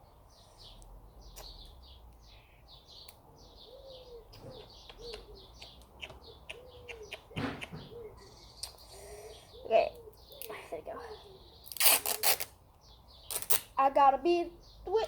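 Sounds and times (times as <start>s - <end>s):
small birds chirping: 0.0s - 15.0s
pigeon cooing: 3.5s - 11.6s.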